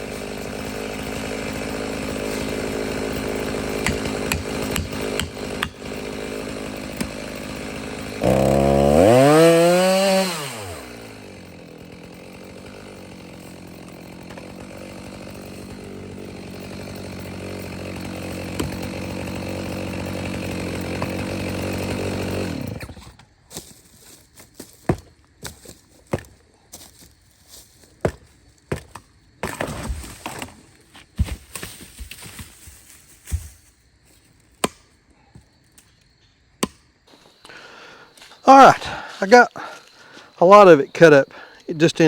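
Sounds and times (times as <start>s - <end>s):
chainsaw running: 0.0s - 24.1s, 37.1s - 42.0s.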